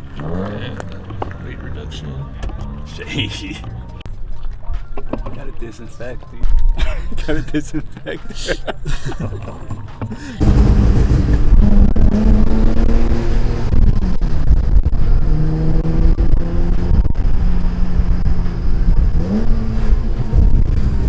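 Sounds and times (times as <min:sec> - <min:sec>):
car engine running hard: 0:00.0 - 0:04.1, 0:09.8 - 0:21.0
wind rumble: 0:09.8 - 0:21.0.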